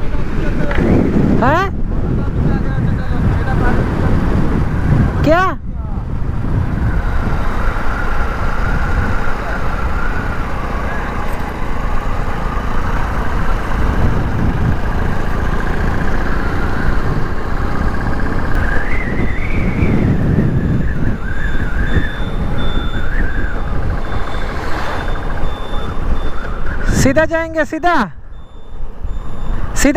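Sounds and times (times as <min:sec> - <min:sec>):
wind rumbling on microphone: 0:00.0 - 0:27.3
motorcycle engine running: 0:06.0 - 0:27.0
wavering high-pitched tone: 0:18.6 - 0:27.0, 0:28.2 - 0:29.9.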